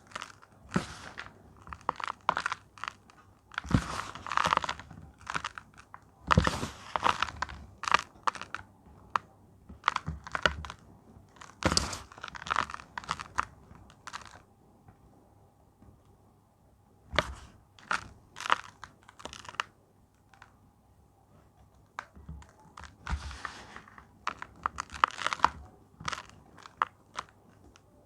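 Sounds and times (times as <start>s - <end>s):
chalk blocks crunching: 0.0s - 8.6s, 9.8s - 14.4s, 17.2s - 19.7s, 22.3s - 27.8s.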